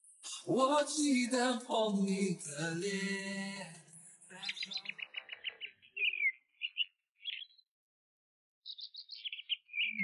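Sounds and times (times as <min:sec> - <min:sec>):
small bird chirping: 0:04.4 - 0:07.7, 0:08.6 - 0:10.0.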